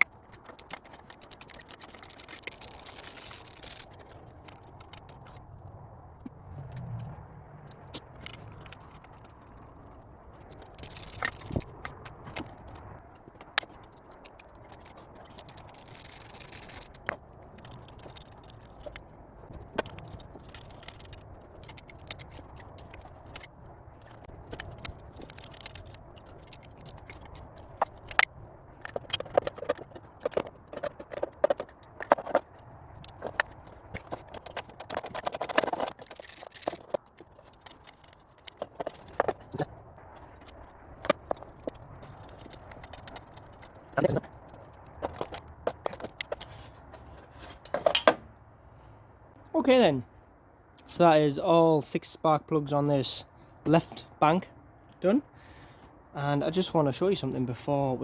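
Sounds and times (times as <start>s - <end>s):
hand tools clicking on metal: 0.0s - 5.4s, 7.8s - 48.2s.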